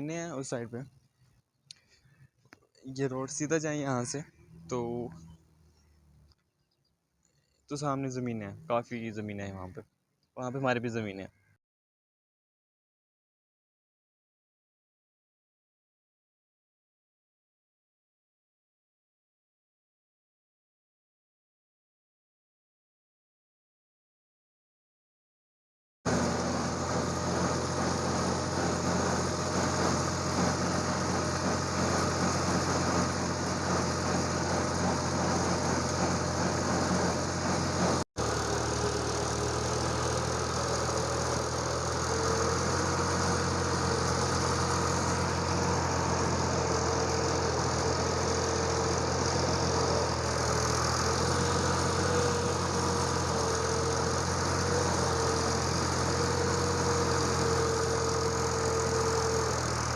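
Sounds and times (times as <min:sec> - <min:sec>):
vehicle engine running: 0:03.0 - 0:06.4, 0:07.7 - 0:09.8, 0:26.1 - 0:59.9.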